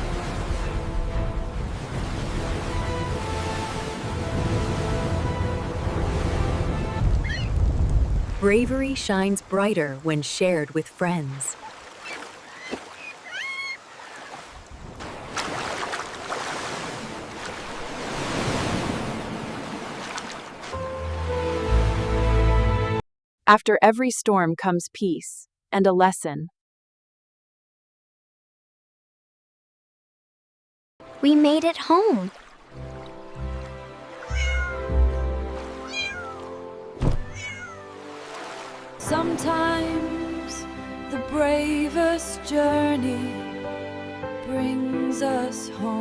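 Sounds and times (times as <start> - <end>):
soft background music: 0.0 - 7.1, 31.0 - 46.0
wind: 0.0 - 21.4, 32.2 - 39.0
ocean waves: 0.0 - 22.8, 31.0 - 44.2
sharp water splashes: 11.3 - 20.8, 31.1 - 39.0
cat meowing: 13.2 - 13.8, 34.2 - 35.2, 35.8 - 36.5, 37.2 - 37.9
thump: 37.0 - 37.3.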